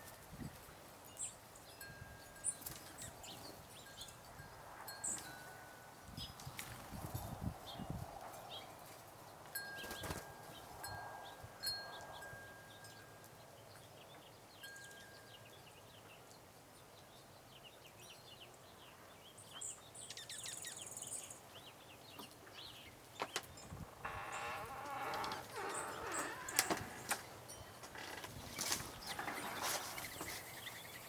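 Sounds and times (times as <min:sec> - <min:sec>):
small birds chirping: 0:07.6 - 0:31.0.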